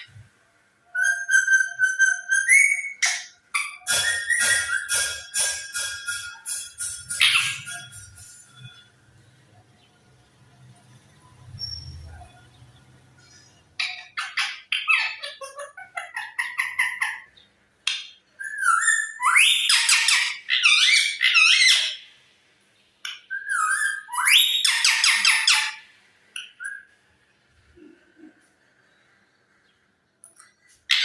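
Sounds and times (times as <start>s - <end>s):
parrot whistle: 0.9s - 5.2s
parrot chattering and squawking: 0.9s - 8.9s, 13.2s - 22.1s, 23.2s - 26.9s.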